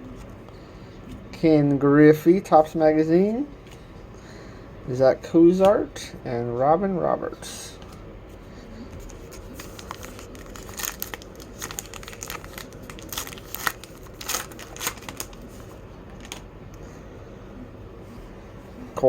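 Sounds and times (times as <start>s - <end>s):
wrapper tearing and crinkling: 9.0s - 16.5s.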